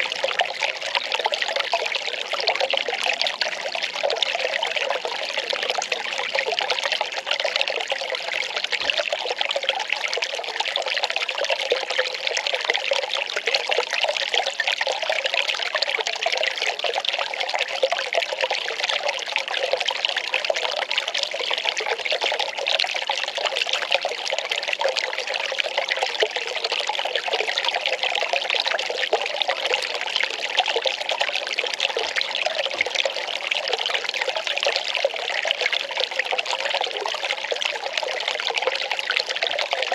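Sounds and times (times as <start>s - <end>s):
water pouring and trickling: 0.0s - 39.9s.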